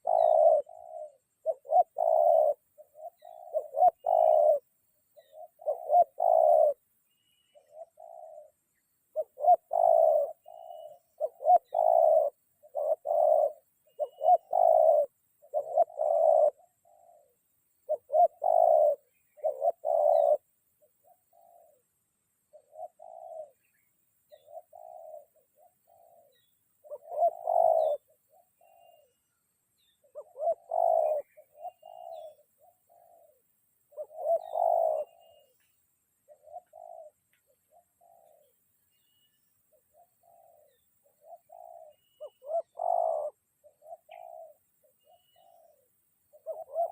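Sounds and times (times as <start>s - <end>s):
dove cooing: 0.0s - 46.9s.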